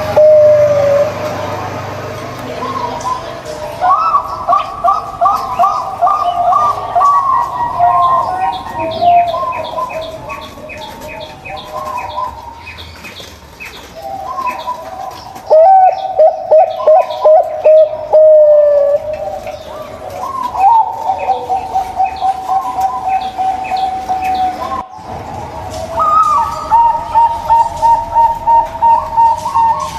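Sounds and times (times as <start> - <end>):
doves cooing: 0.0 - 29.9
small birds chirping: 0.0 - 29.9.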